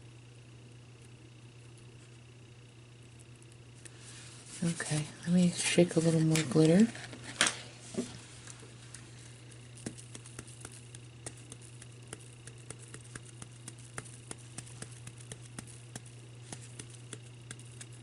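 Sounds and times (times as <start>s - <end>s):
steady low hum: 0.0s - 18.0s
glitter ticking onto ornament: 8.9s - 18.0s.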